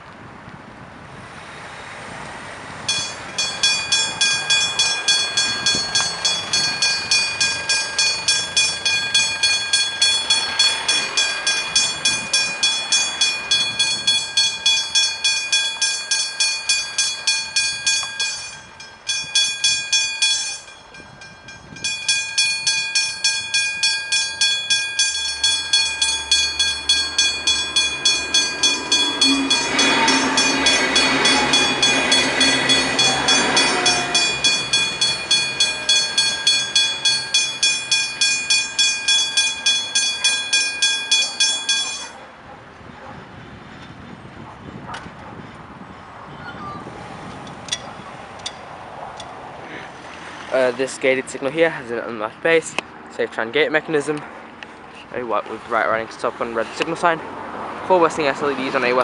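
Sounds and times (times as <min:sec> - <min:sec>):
train rumble: 0:00.0 - 0:59.0
level crossing bell ringing: 0:02.9 - 0:42.2.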